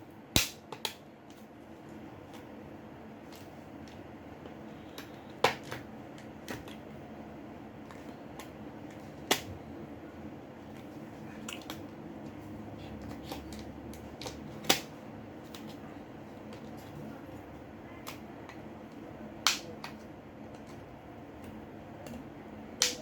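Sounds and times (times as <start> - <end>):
sharp plastic snaps: 0.3 - 1.4, 9.2 - 9.6, 13.0 - 15.8, 18.0 - 20.8, 22.8 - 23.0.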